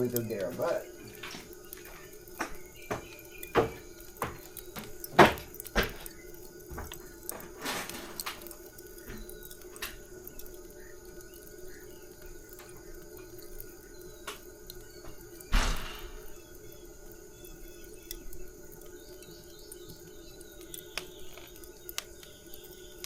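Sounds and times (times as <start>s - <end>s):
sharp knocks and clicks: 0.1s - 10.0s.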